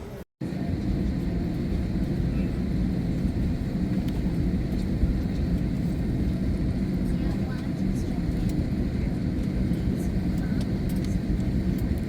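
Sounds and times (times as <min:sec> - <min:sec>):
jet aircraft rumble: 0:00.0 - 0:12.0.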